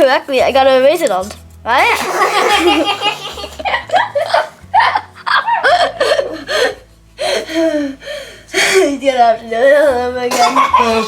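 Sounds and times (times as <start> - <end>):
people laughing: 1.9 - 6.8.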